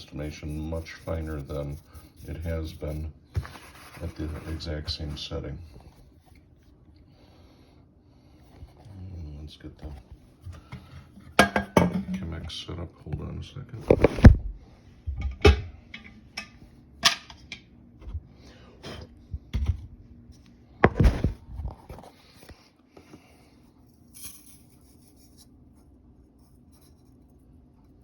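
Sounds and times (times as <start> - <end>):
scratchy rustling: 0.0 - 5.2.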